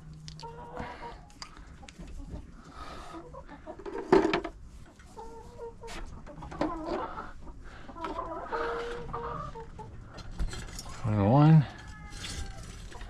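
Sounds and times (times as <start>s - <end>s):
hens clucking and calling: 0.2s - 10.3s.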